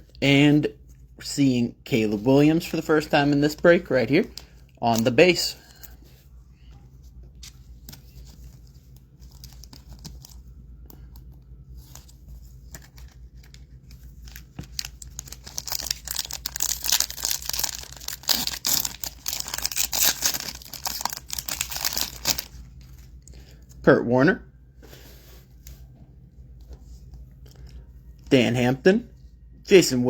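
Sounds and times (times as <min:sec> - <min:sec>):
foil wrapper crinkling: 0:14.0 - 0:22.6.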